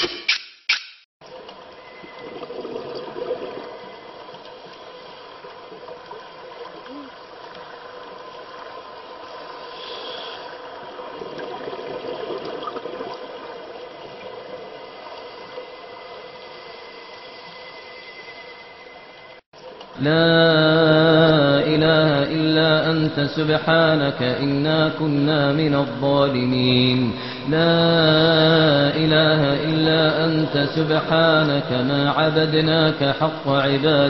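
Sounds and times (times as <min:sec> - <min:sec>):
muffled underwater water wash: 0:01.2 - 0:20.0.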